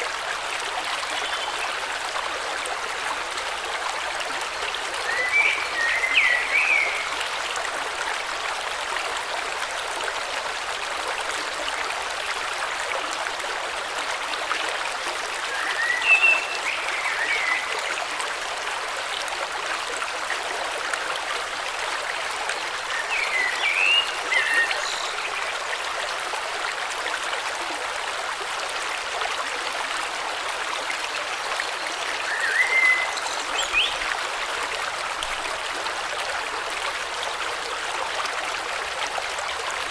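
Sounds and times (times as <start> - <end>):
river rushing: 32.2 - 35.0.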